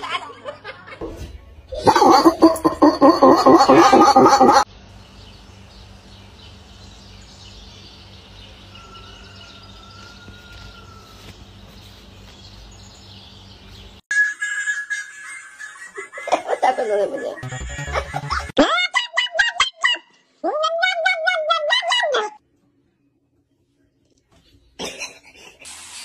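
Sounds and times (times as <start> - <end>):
loud wavering voice: 1.8 - 4.6, 18.6 - 22.4
faint birds chirping: 3.8 - 14.0, 22.7 - 24.8
thin drawn-out whistle: 14.1 - 15.3.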